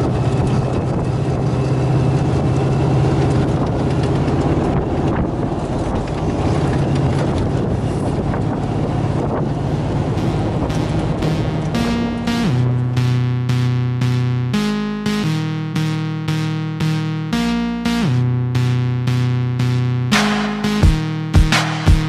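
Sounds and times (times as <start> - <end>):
wind on microphone: 0.0 - 1.8, 4.5 - 11.2
truck engine running: 0.0 - 22.0.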